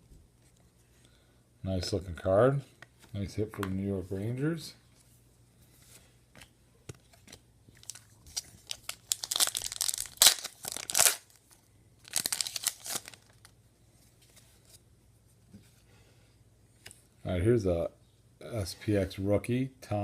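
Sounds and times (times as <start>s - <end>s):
wrapping rustling and crinkling: 7.1s - 14.8s.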